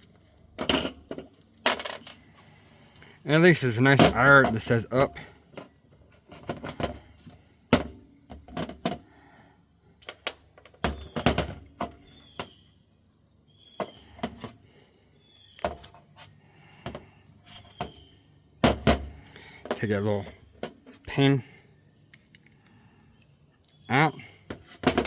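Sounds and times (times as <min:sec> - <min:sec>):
metal parts and screwdriver clattering: 0:00.0 - 0:09.0, 0:10.0 - 0:12.6, 0:13.7 - 0:14.6, 0:15.3 - 0:21.2, 0:24.2 - 0:25.0.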